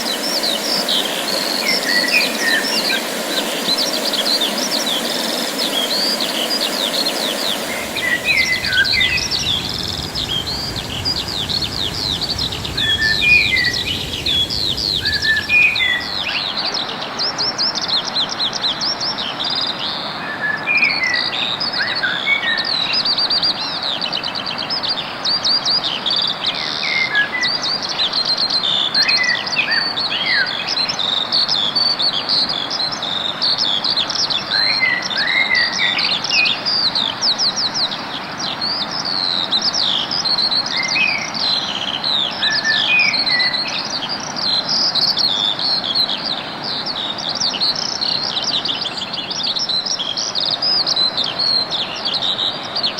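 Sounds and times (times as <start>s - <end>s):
songbirds chirping: 0.0s - 25.2s
background hiss and low rumble: 7.7s - 16.8s.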